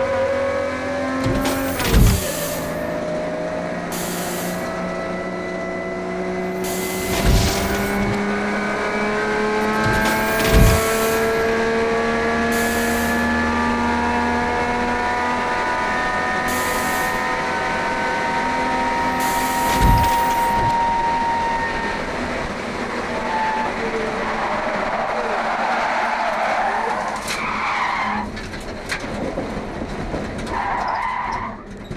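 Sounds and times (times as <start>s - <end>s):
race car engine running hard: 0.0s - 21.4s
sharp knocks: 1.2s - 3.1s, 6.4s - 8.3s, 9.6s - 13.4s
rough noise: 1.2s - 5.3s, 6.4s - 8.5s, 9.4s - 13.9s, 16.5s - 17.9s, 19.0s - 21.0s.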